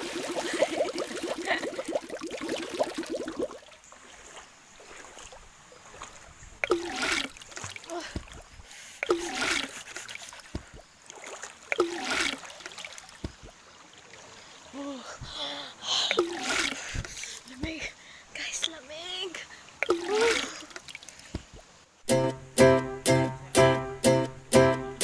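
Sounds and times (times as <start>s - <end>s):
water splashing: 0.0s - 14.8s, 16.1s - 17.9s, 19.6s - 21.8s.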